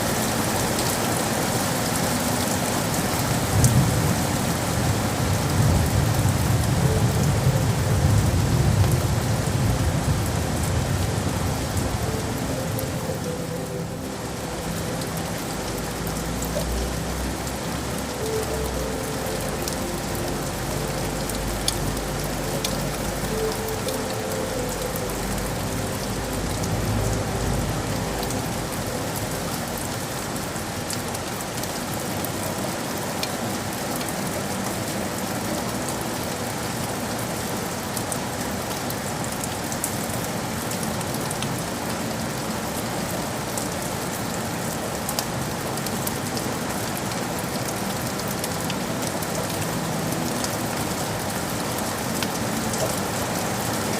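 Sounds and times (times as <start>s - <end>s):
rain hissing: 0.0s - 53.9s
raindrop ticks: 14.5s - 32.3s.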